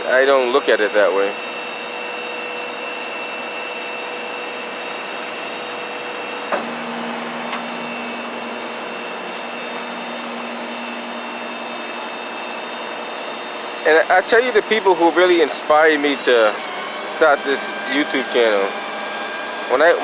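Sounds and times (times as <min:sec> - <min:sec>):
fan blowing air: 0:00.0 - 0:20.0
faint steady whine: 0:00.1 - 0:19.4.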